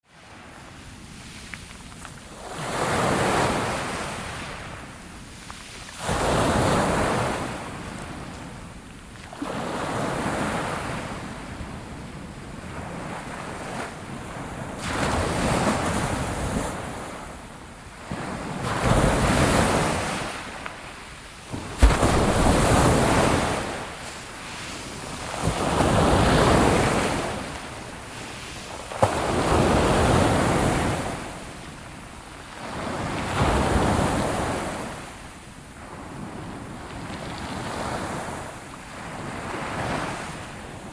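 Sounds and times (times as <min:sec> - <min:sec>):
sea waves washing ashore: 0:00.1 - 0:40.9
wind on microphone: 0:21.5 - 0:31.9.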